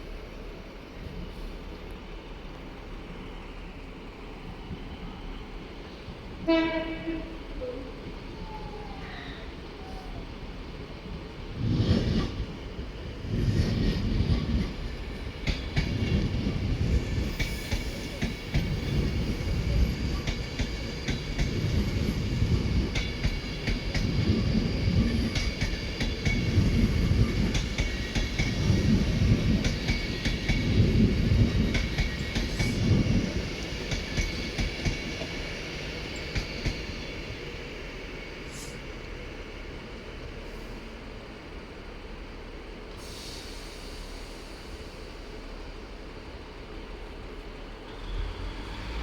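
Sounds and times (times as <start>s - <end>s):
train wheels clattering: 13.3s - 37.2s.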